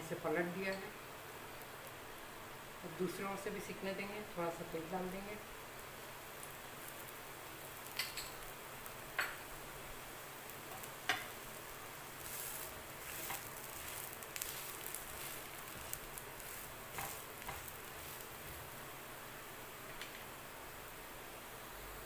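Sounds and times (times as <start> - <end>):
batter sizzling in oil: 0.0 - 22.0
metal utensils scraping a pan: 12.3 - 18.2.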